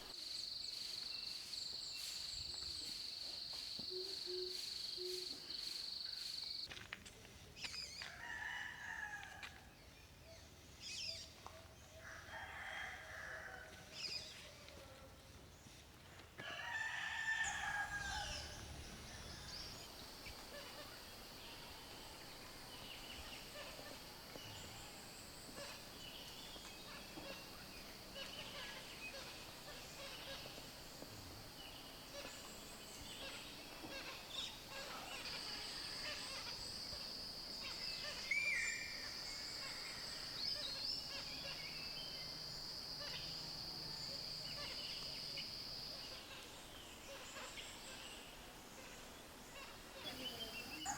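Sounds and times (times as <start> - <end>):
rooster crowing: 8.2 - 9.4, 12.0 - 13.8, 16.4 - 18.8
wild birds calling: 17.2 - 46.3, 50.0 - 50.9.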